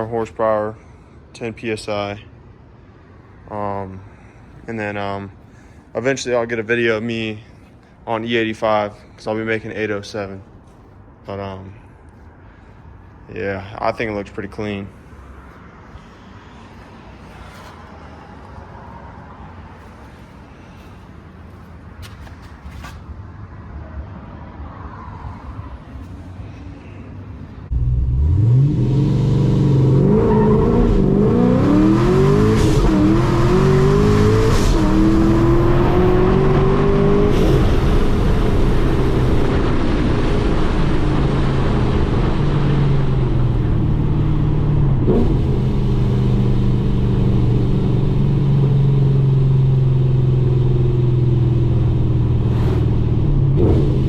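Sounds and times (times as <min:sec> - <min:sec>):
car engine revving through gears: 0:27.7 - 0:54.0.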